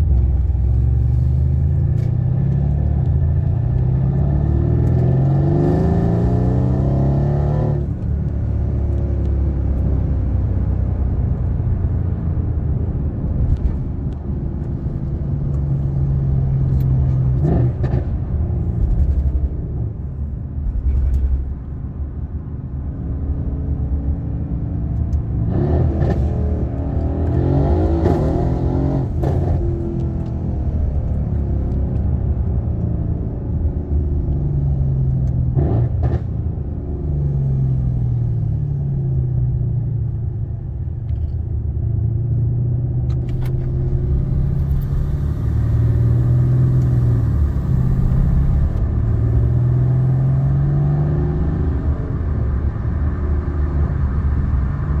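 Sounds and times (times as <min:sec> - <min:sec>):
car engine revving: 0:03.8 - 0:09.0, 0:25.5 - 0:31.8, 0:43.1 - 0:52.8.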